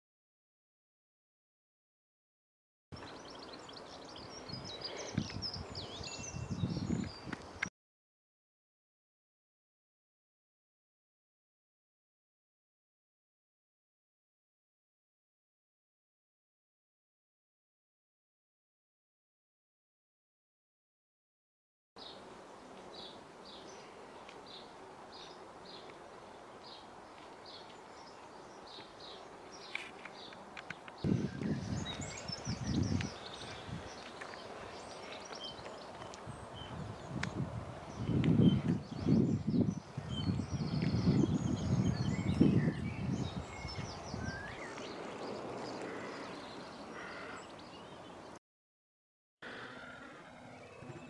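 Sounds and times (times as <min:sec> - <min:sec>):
wild birds chirping: 0:03.0 - 0:07.4, 0:22.0 - 0:48.4, 0:49.4 - 0:51.0.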